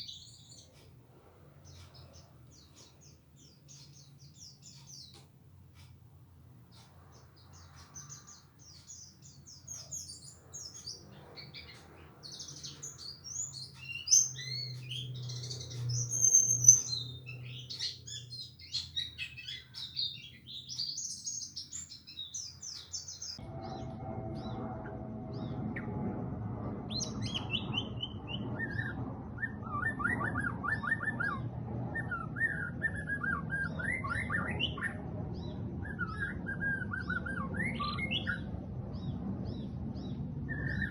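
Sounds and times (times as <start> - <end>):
songbirds chirping: 0.0 - 40.9
bird fast trilled notes: 8.0 - 31.4.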